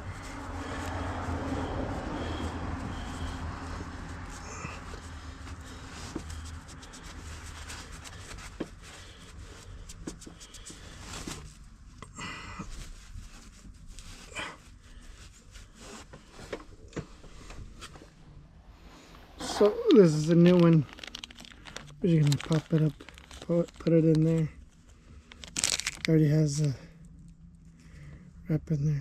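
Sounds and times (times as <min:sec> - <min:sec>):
low hum: 0:00.0 - 0:15.8.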